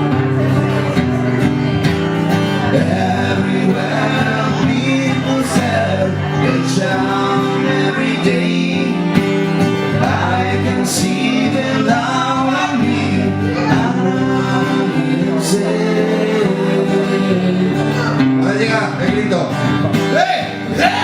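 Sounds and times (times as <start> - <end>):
guitar accompaniment: 0.0 - 21.0
person singing: 2.6 - 18.4.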